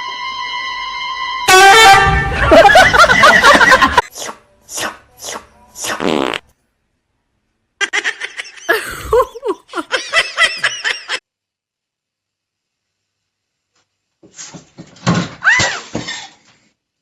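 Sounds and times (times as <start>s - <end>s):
person laughing: 2.3s - 4.1s, 7.8s - 11.2s.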